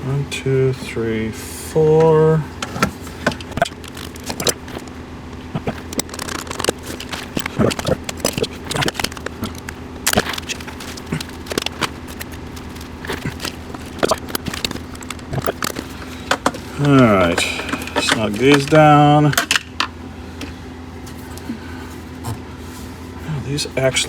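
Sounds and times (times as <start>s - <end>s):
low hum: 0.9s - 23.2s
small metal parts clicking and tapping: 5.6s - 19.9s.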